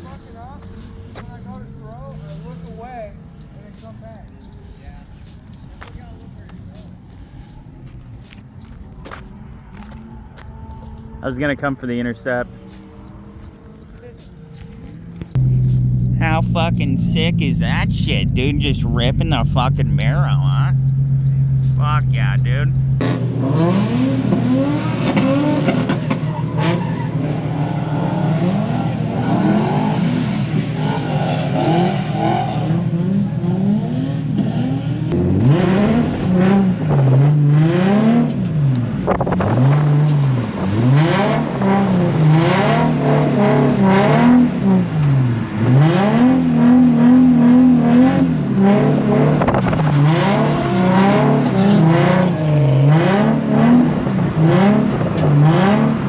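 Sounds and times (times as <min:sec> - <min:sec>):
car engine revving: 0:15.0 - 0:56.0.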